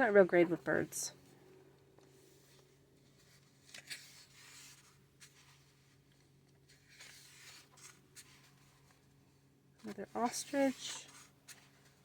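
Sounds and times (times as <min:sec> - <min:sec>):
book pages being turned: 0:01.8 - 0:12.0.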